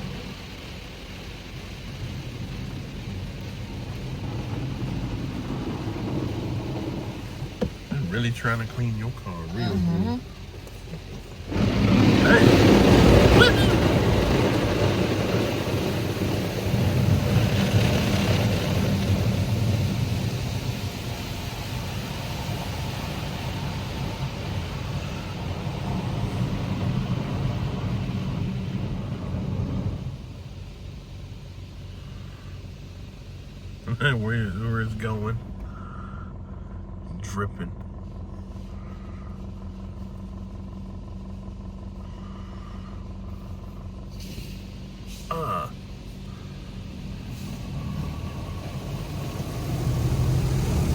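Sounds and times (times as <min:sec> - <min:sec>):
car wash brushes scrubbing: 0:00.0 - 0:30.9.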